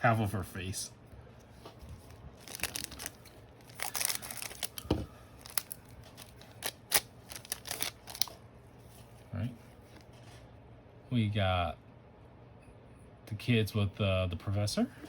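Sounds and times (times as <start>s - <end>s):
wrapper crinkling and tearing: 2.0s - 8.4s
cards clicking and snapping: 2.4s - 8.3s.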